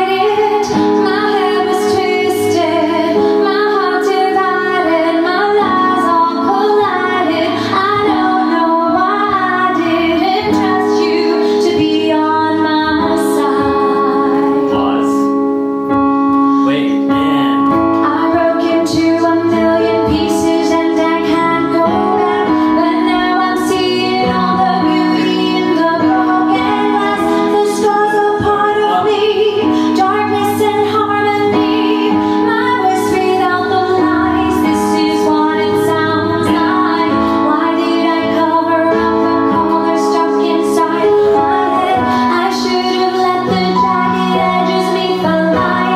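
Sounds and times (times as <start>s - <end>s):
woman singing: 0.0s - 15.4s, 17.9s - 45.9s
instrumental held chords: 0.0s - 45.9s.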